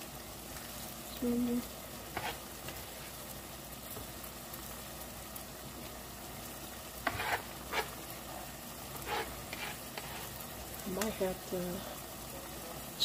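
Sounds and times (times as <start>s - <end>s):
sauce sizzling in a pot: 0.0s - 13.0s
spoon scraping a pot: 2.1s - 2.8s, 7.0s - 8.0s, 9.0s - 10.4s.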